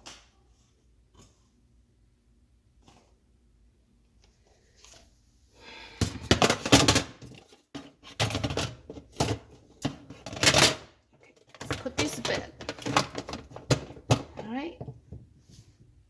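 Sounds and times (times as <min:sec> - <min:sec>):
dishwasher parts rattling and scraping: 0:06.1 - 0:15.0.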